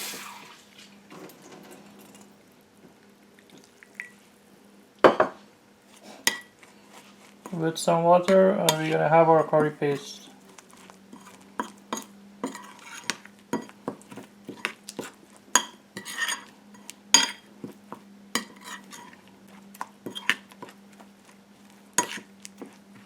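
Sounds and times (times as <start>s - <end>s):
spoon scraping a bowl: 8.6s - 17.5s, 18.4s - 19.3s, 20.0s - 20.8s, 22.0s - 22.8s
spoon clinking against a bowl: 11.2s - 13.8s, 15.6s - 17.4s, 18.4s - 19.2s, 22.0s - 22.2s.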